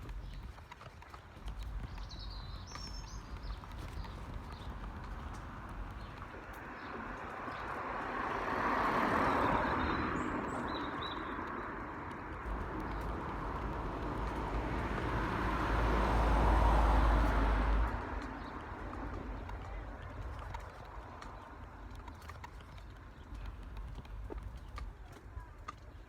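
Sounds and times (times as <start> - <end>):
wind buffeting microphone: 0.0 - 26.0
wind gusting through trees: 1.8 - 19.8.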